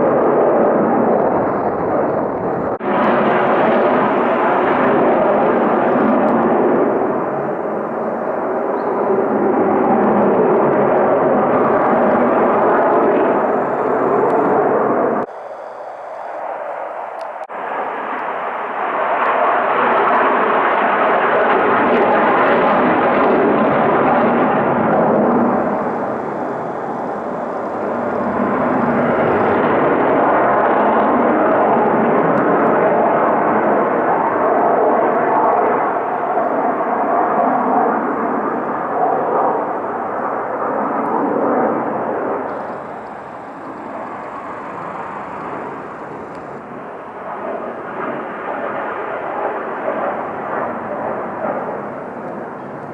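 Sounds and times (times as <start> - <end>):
fighter jets flying low: 0.0 - 52.9.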